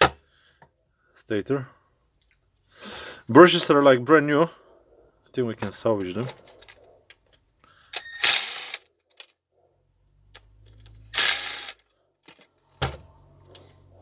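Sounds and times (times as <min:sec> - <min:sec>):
clicks and knocks of parts: 0:05.6 - 0:09.4, 0:10.3 - 0:13.7.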